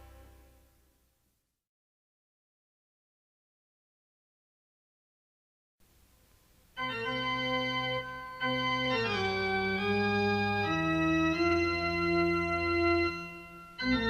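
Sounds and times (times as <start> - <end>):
organ chords on keyboard: 0.0 - 0.6, 6.8 - 14.0.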